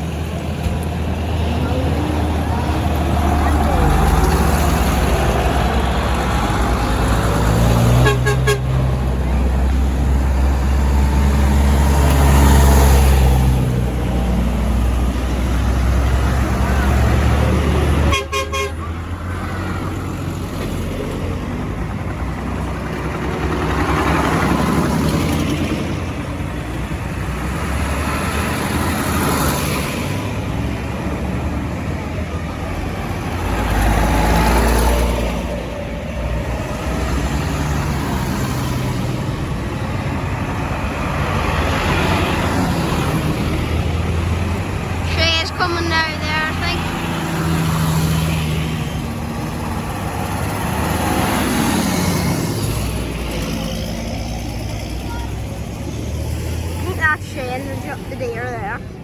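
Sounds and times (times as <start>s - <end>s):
tractor diesel engines rumbling past: 0.0s - 59.0s
vehicle horns tooting: 7.9s - 8.8s, 18.0s - 18.9s, 45.1s - 46.9s.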